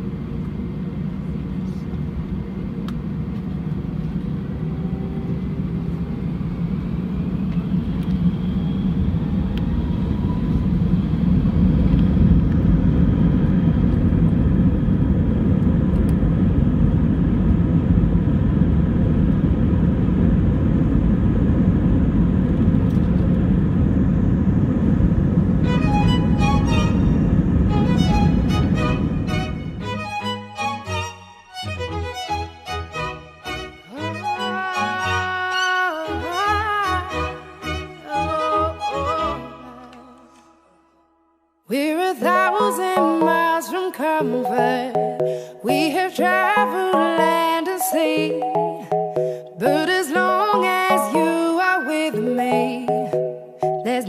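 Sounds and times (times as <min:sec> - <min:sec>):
vehicle rumbling in motion: 0:00.0 - 0:30.8
faint rising whines: 0:00.0 - 0:34.0
music: 0:25.6 - 0:41.6, 0:42.2 - 0:54.0.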